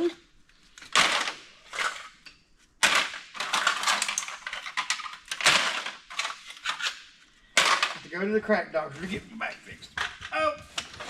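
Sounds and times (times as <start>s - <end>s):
aluminum cans clattering: 2.8s - 6.9s, 7.6s - 8.1s.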